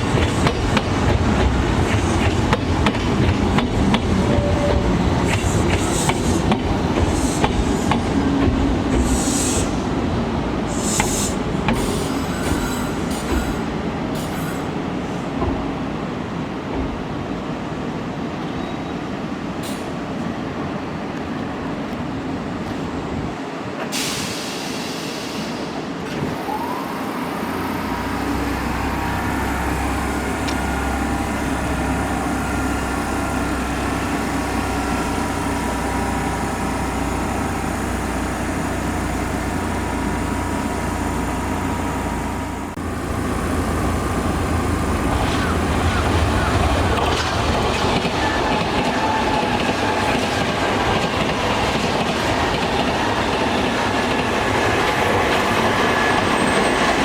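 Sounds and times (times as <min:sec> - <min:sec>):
hiss of air: 0:09.0 - 0:09.9, 0:10.7 - 0:15.2, 0:23.8 - 0:27.3
train motor whine: 0:26.1 - 0:47.4.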